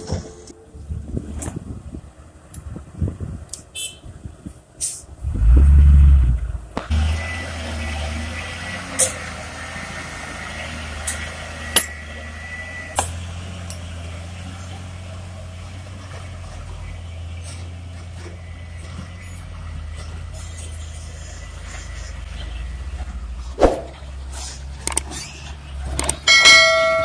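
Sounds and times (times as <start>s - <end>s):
diesel engine running: 5.1s - 27.0s
sharp clicks or knocks: 24.8s - 25.1s, 26.0s - 26.2s.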